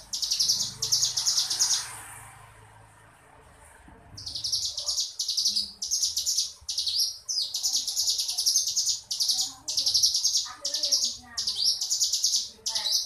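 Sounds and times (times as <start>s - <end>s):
bird singing fast trills: 0.0s - 1.9s, 4.2s - 13.0s.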